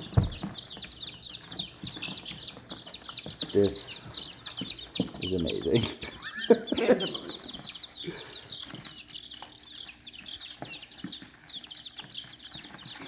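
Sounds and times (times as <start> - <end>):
baby chicks peeping: 0.0 - 13.0.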